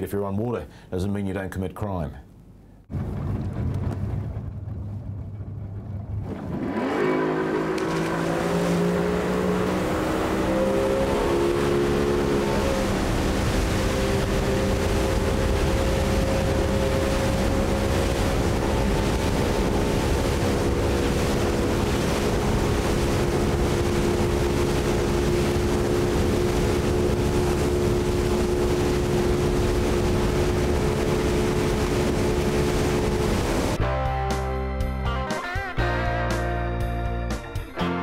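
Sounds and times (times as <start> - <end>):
motorboat engine running: 2.9 - 33.8
rushing water: 6.2 - 33.8
wind on microphone: 7.7 - 33.8.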